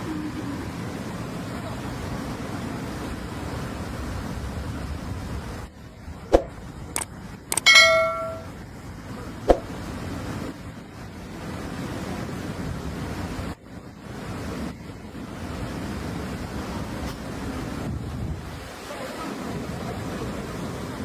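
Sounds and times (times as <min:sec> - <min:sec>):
ringing metallic clang: 0:07.6 - 0:08.5.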